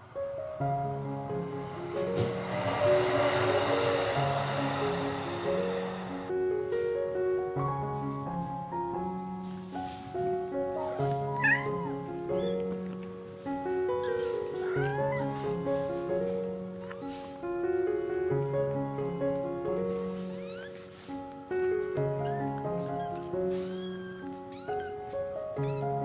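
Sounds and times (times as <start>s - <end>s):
piano music: 0.0s - 26.0s
kittens meowing: 10.9s - 12.8s, 14.0s - 15.4s, 16.8s - 17.2s, 20.4s - 20.8s, 22.2s - 26.0s.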